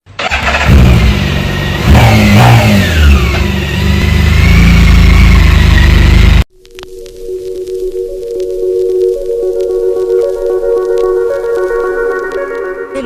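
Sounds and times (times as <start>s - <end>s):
motorcycle engine revving: 0.1s - 6.5s.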